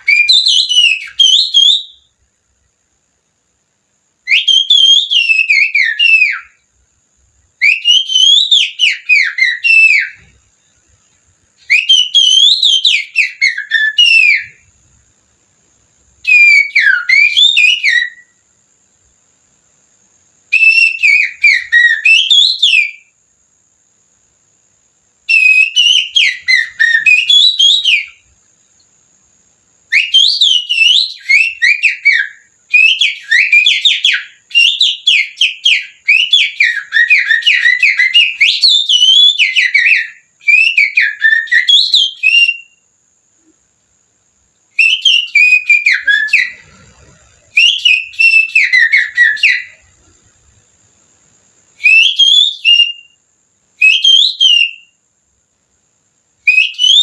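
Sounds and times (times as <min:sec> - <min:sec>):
finger whistling bird song: 0:00.0 - 0:02.2, 0:04.2 - 0:06.7, 0:07.6 - 0:10.9, 0:11.6 - 0:14.7, 0:16.2 - 0:18.4, 0:20.4 - 0:23.1, 0:25.3 - 0:28.9, 0:29.8 - 0:42.8, 0:44.7 - 0:50.3, 0:51.8 - 0:53.2, 0:53.8 - 0:55.0, 0:56.4 - 0:57.0.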